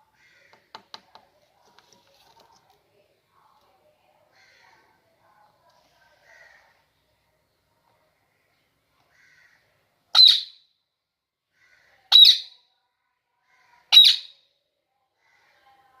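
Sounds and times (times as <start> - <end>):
parrot squawking: 10.2 - 10.6, 12.1 - 12.6, 13.9 - 14.4.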